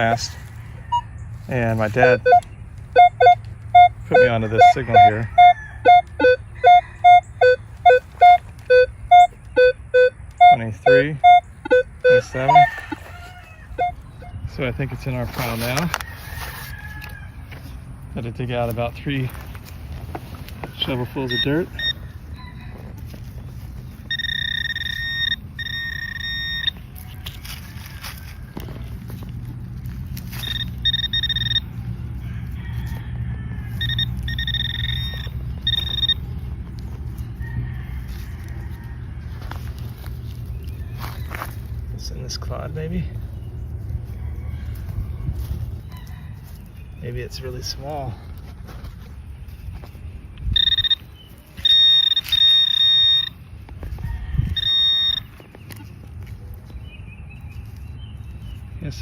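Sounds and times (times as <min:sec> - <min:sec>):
metal detector pinpointer tone: 0:00.8 - 0:13.1, 0:13.8 - 0:14.6, 0:20.6 - 0:22.6, 0:24.0 - 0:27.2, 0:30.3 - 0:31.8, 0:33.8 - 0:36.5, 0:50.4 - 0:53.4, 0:54.5 - 0:55.8.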